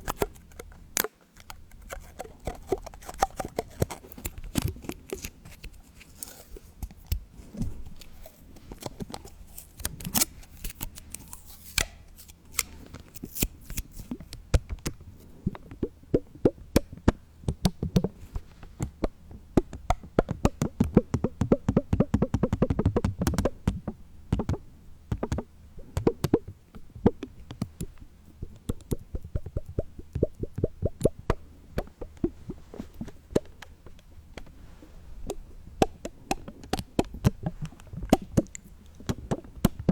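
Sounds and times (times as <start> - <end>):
small sharp taps and clicks: 13.3 - 34.5, 35.2 - 39.9.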